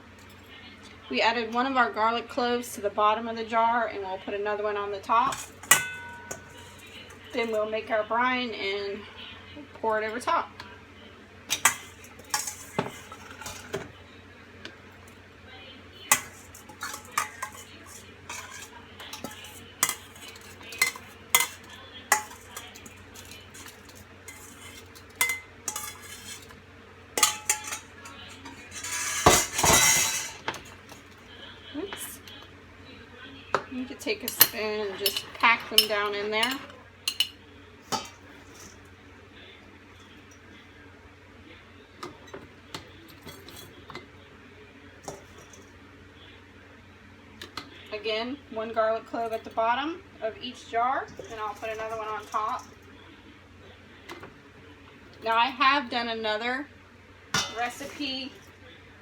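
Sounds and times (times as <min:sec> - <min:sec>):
spoon clinking against glass jars: 0:05.3 - 0:07.6, 0:16.1 - 0:26.5, 0:27.2 - 0:30.5, 0:34.2 - 0:38.1.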